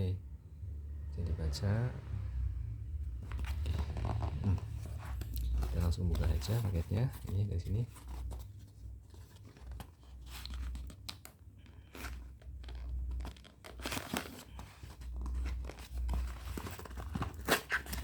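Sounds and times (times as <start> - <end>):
packaging tearing and crinkling: 9.6 - 18.0.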